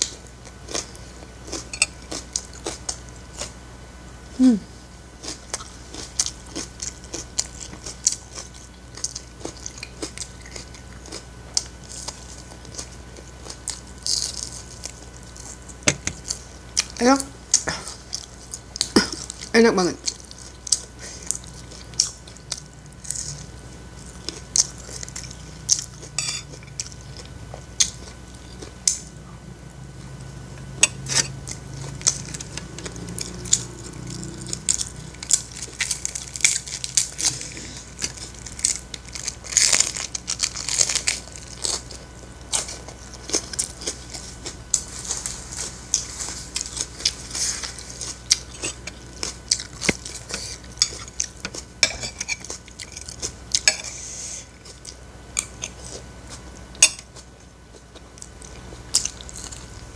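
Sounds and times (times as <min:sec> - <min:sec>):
crunching and chewing cabbage: 0:00.0 - 0:03.7, 0:05.0 - 0:29.2, 0:29.9 - 0:59.9
spoon clinking and scraping plate: 0:01.7 - 0:02.0, 0:26.2 - 0:26.5, 0:50.8 - 0:52.4.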